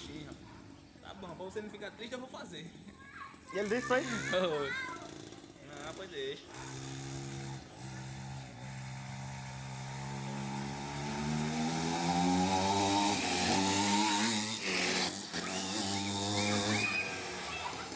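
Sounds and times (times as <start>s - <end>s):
dirt bike engine revving: 3.6s - 17.9s.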